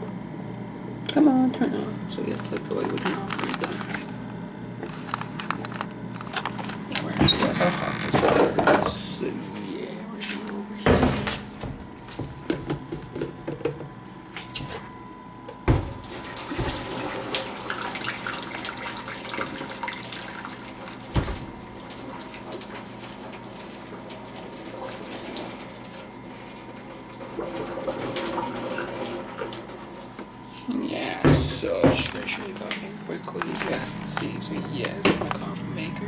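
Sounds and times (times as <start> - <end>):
water running into sink: 15.7 - 30.1.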